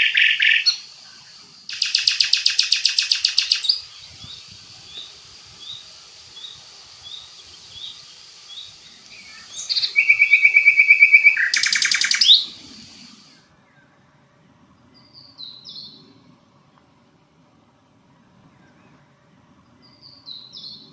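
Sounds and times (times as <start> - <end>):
faint high chirps: 0.0 - 14.2
songbird singing trill: 0.0 - 14.2, 14.8 - 16.2, 18.2 - 20.9.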